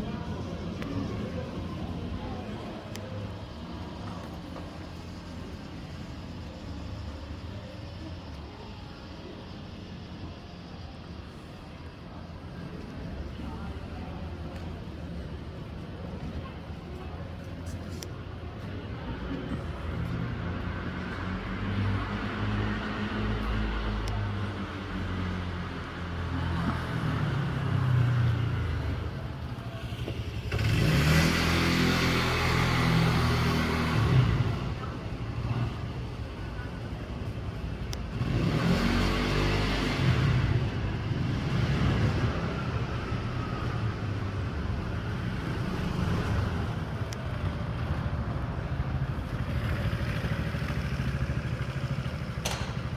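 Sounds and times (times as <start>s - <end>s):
city traffic rumble: 0.0s - 52.9s
vehicle engine humming: 12.6s - 52.9s
vehicle passing with road noise: 18.9s - 52.9s.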